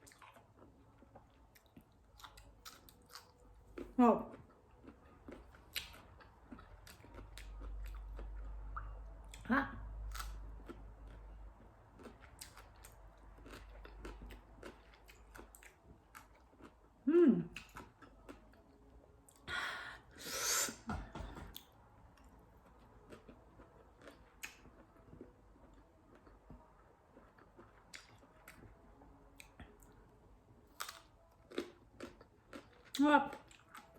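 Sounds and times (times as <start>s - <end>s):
wet chewing sounds: 0.0s - 9.4s, 10.1s - 16.8s, 17.5s - 18.7s, 22.2s - 28.8s, 30.7s - 33.9s
person humming mm: 17.0s - 17.5s
breathy sniffs or exhales: 19.6s - 20.8s.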